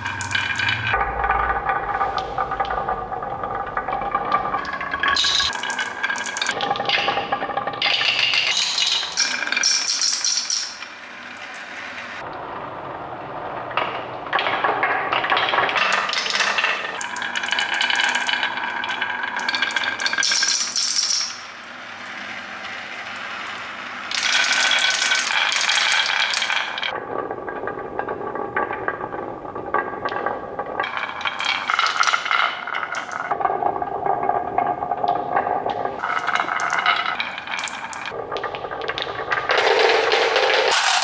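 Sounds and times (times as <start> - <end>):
small hard objects rattling: 7.8 - 10.8, 39.3 - 41.0.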